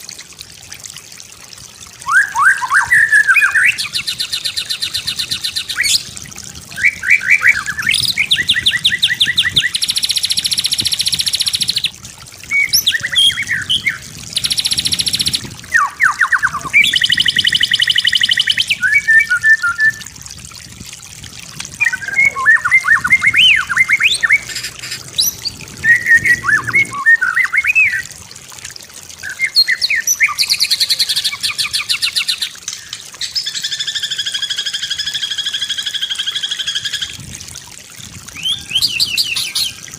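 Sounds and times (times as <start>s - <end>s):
songbird singing varied song: 12.5s - 20.0s, 21.8s - 28.0s.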